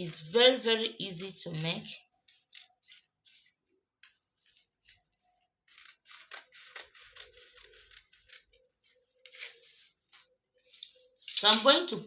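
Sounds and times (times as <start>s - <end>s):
scissors cutting fabric: 0.0s - 4.7s, 5.6s - 10.2s.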